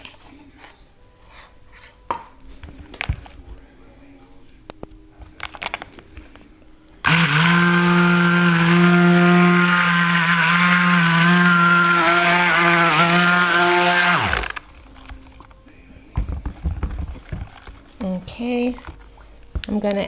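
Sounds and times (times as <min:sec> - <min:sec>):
stick blender motor hum: 0:07.0 - 0:14.7.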